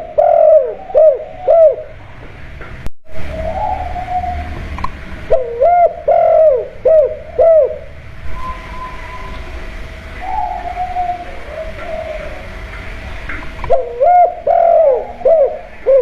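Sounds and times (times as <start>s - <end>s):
dove cooing: 0.0s - 2.3s, 3.2s - 16.0s.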